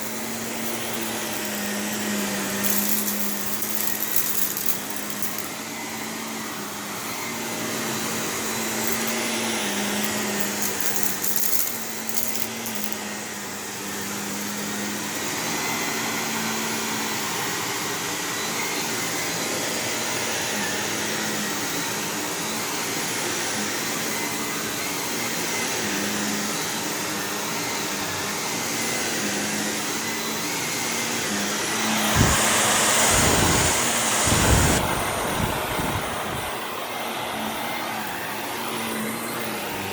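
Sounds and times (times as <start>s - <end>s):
vacuum cleaner on carpet: 0.0s - 39.9s.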